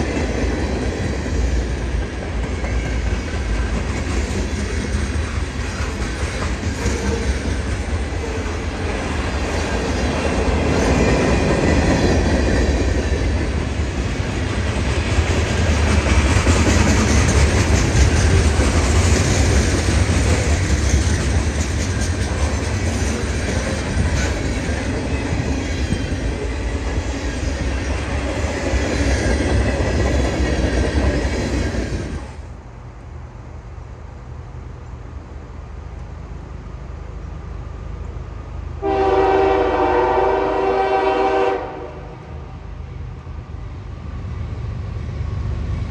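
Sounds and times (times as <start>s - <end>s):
wheels clacking over rail joints: 0.0s - 32.3s
freight train rumbling past: 0.0s - 45.9s
train wheel squeal: 15.6s - 32.4s.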